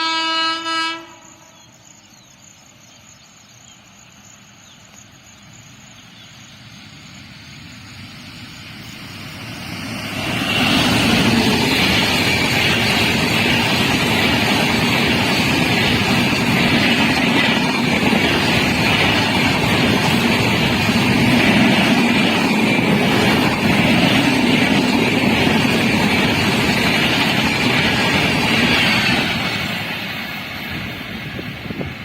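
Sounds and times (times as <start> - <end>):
train passing on tracks: 0.0 - 32.0.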